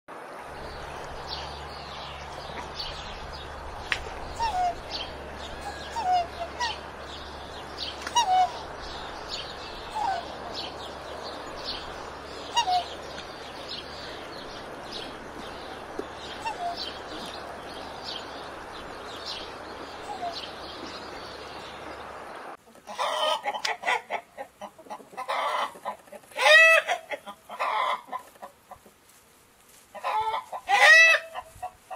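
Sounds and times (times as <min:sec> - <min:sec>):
steady low hum: 0:00.3 - 0:22.6
chickens clucking: 0:00.6 - 0:29.1, 0:29.9 - 0:31.9.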